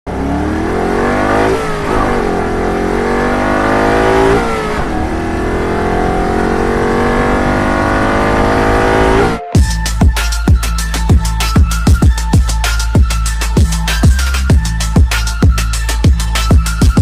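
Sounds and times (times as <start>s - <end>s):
vehicle engine accelerating: 0.1s - 9.5s.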